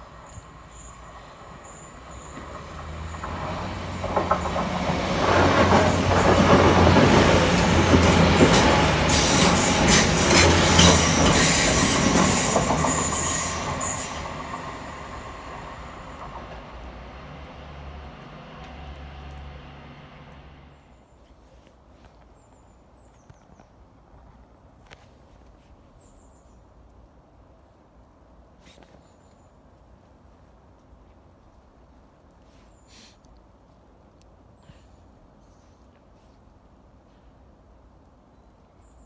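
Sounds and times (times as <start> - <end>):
train passing rumble: 0.0 - 21.1
wheels clicking over rails: 2.0 - 20.7.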